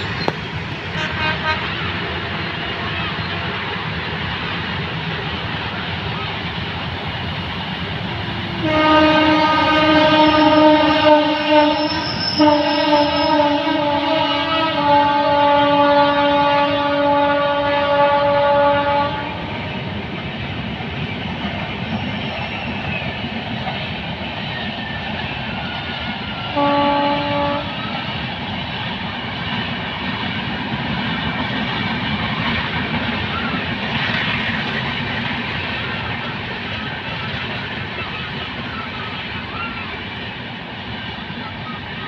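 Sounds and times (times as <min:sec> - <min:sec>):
train wheels rushing on rails: 0:00.0 - 0:42.0
train horn: 0:00.8 - 0:03.6, 0:08.5 - 0:19.7, 0:26.5 - 0:28.0.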